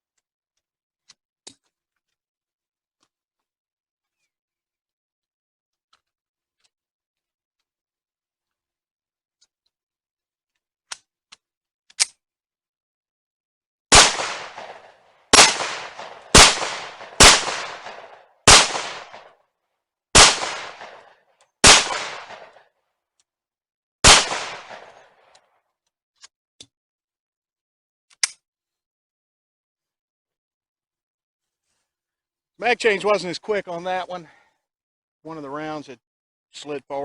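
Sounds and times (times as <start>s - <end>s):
pistol shots with echo: 13.9s - 19.3s, 20.2s - 22.6s, 24.0s - 25.1s.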